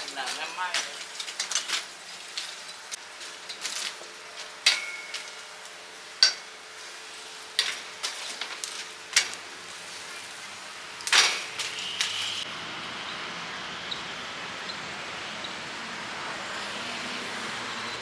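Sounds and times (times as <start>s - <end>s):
metal pans clanking: 0.0s - 10.3s, 11.0s - 12.4s
kitchen noise hiss: 0.0s - 12.5s.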